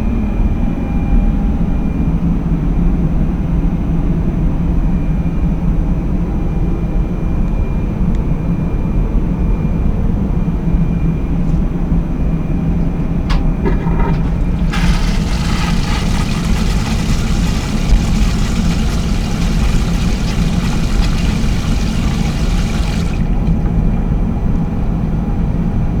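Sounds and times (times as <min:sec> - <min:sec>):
toilet flush click: 0:13.2 - 0:24.4
toilet flushing hiss: 0:13.3 - 0:24.4.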